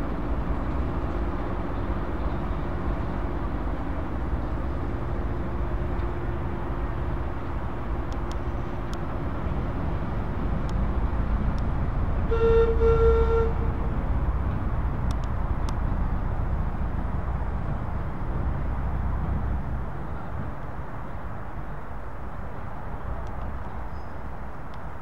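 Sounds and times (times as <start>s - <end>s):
train rumbling over a bridge: 0.0s - 25.0s
locomotive horn blast: 12.2s - 13.8s.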